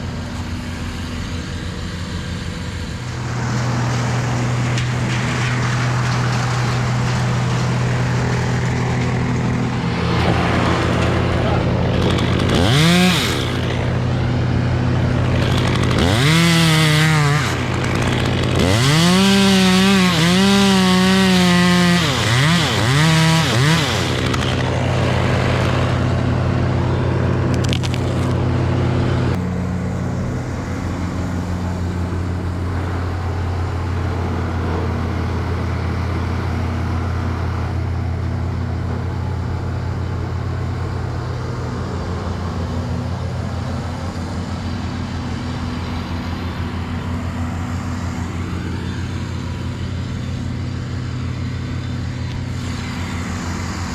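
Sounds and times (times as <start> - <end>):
low engine drone: 0.0 - 53.9
chainsaw revving: 3.4 - 29.7, 44.6 - 53.9.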